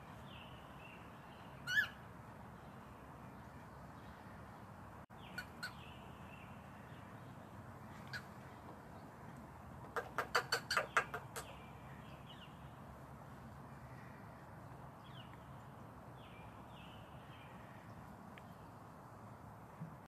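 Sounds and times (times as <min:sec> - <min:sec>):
cockatiel harsh calls: 0:01.6 - 0:02.0
soft bird chirps: 0:10.0 - 0:12.9.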